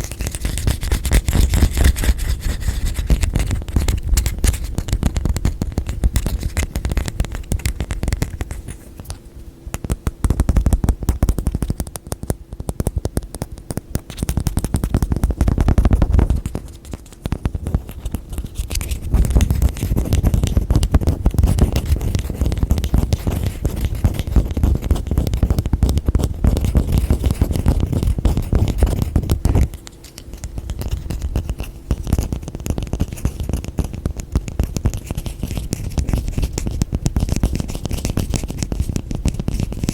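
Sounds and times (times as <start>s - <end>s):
fingertips tapping and scratching: 0.0s - 39.9s.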